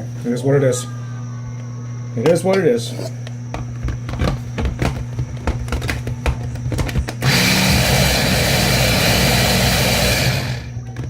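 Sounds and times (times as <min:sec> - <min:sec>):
food processor running: 0:06.8 - 0:10.8.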